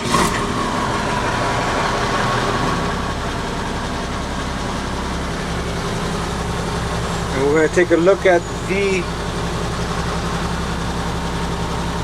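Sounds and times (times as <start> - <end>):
diesel excavator engine idling: 0.0 - 12.0.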